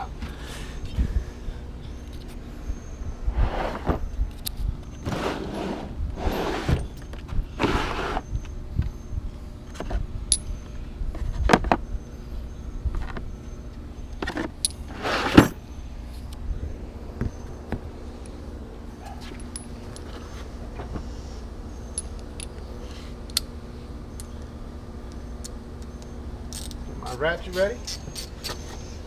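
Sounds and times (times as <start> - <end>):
sharp metal clinks: 10.3 - 10.7, 21.7 - 22.6.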